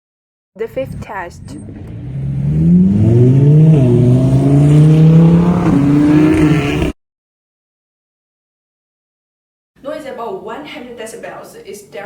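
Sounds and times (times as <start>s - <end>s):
loud engine revving: 0.7s - 7.0s.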